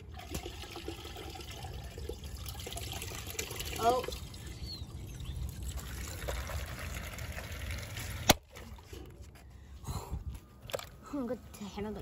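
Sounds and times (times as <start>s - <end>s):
trickling water: 0.0s - 9.2s.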